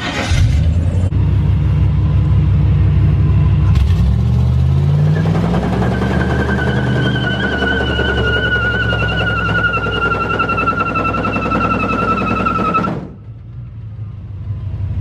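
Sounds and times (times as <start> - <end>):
truck engine rumble: 0.0 - 15.0
tire squeal: 4.8 - 13.4.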